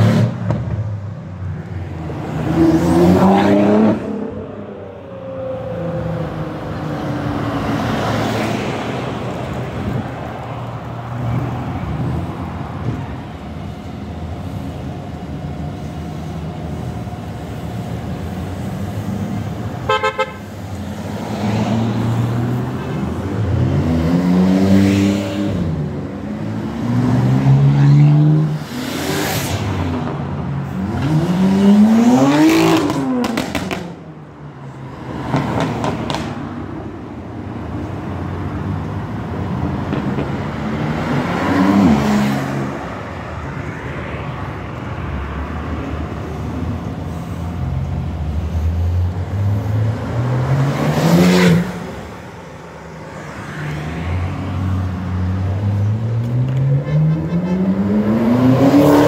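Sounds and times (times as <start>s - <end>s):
car engines revving: 0.0s - 59.0s
car horn toot: 19.8s - 20.5s.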